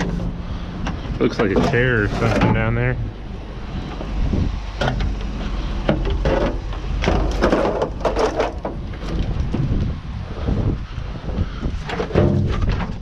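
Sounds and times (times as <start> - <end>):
junk clattering in a dumpster: 0.0 - 3.0, 4.8 - 9.7, 11.7 - 13.0
wind rumble on microphone: 0.0 - 13.0.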